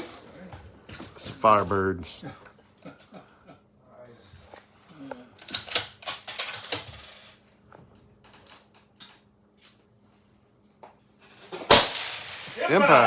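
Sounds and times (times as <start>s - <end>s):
suppressed rifle shot: 11.7s - 12.6s.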